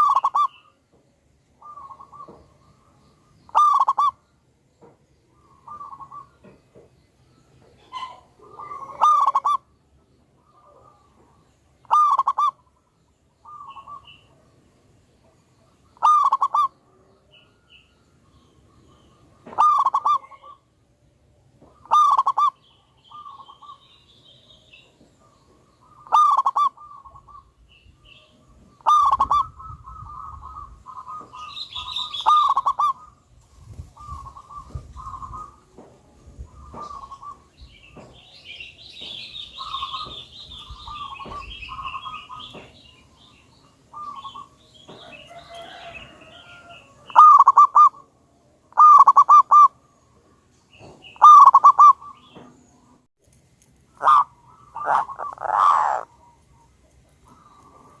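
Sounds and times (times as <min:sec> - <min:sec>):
dove cooing: 0:00.0 - 0:00.8, 0:01.6 - 0:04.2, 0:05.4 - 0:06.5, 0:07.8 - 0:09.7, 0:10.4 - 0:12.7, 0:16.0 - 0:17.1, 0:18.9 - 0:20.7, 0:21.7 - 0:23.8, 0:25.2 - 0:27.6, 0:28.5 - 0:33.2, 0:34.0 - 0:37.5, 0:39.0 - 0:42.8, 0:43.9 - 0:49.8, 0:50.8 - 0:52.5, 0:53.9 - 0:58.0
small birds twittering: 0:00.0 - 0:53.1, 0:53.9 - 0:58.0.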